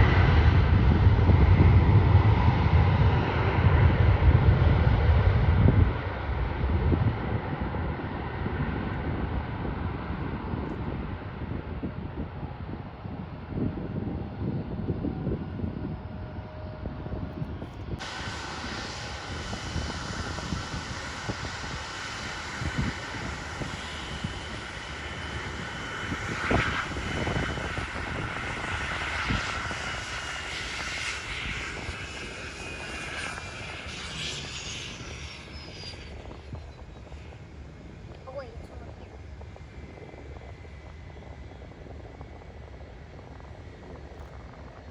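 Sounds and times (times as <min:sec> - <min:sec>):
airliner engines roaring: 0:00.0 - 0:44.9
high whine: 0:15.2 - 0:44.9.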